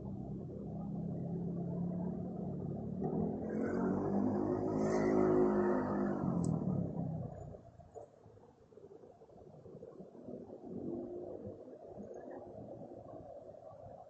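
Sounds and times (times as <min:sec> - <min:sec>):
motor vehicle passing by: 0:01.6 - 0:07.2.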